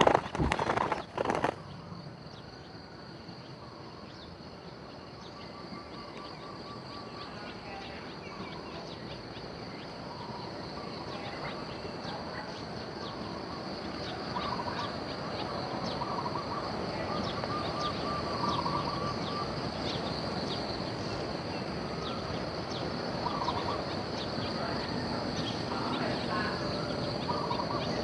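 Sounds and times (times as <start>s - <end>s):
birds chirping: 0.0s - 28.0s
bird warbling call: 14.0s - 20.1s, 23.2s - 24.0s, 25.4s - 28.0s.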